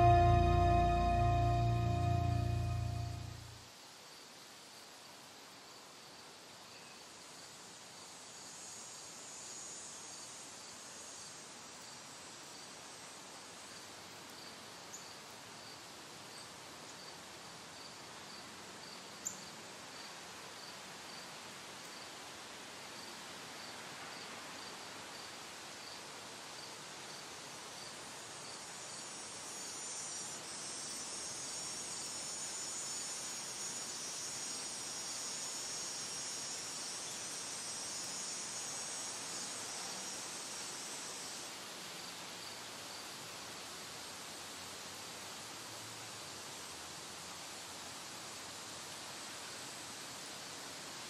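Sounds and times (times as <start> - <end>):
cricket chirping: 27.8 - 41.4.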